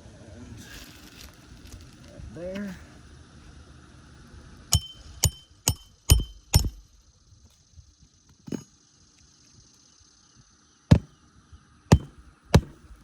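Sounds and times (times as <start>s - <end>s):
hammer driving nails: 4.8s - 6.8s, 11.9s - 13.0s.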